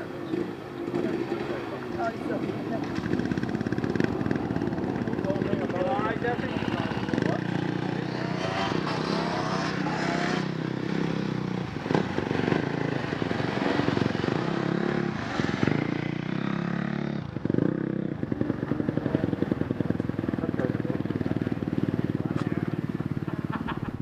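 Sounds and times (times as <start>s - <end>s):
motorcycle engine idling: 0.2s - 8.0s, 16.0s - 24.0s.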